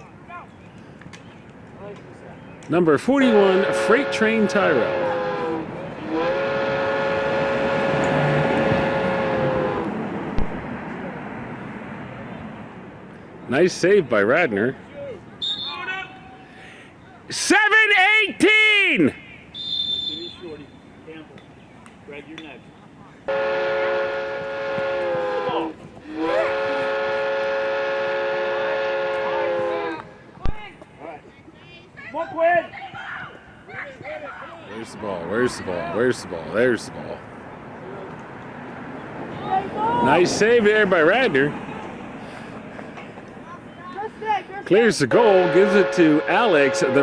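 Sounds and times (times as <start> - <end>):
train whistle blast: 3.2 - 9.9, 23.3 - 30.0, 45.4 - 47.0.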